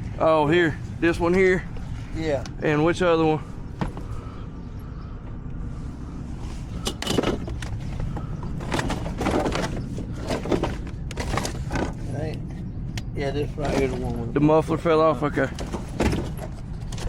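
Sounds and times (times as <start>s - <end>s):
steady low hum: 0.0s - 17.0s
equipment clunking and rattling: 3.4s - 4.4s, 6.6s - 14.3s, 15.2s - 17.0s.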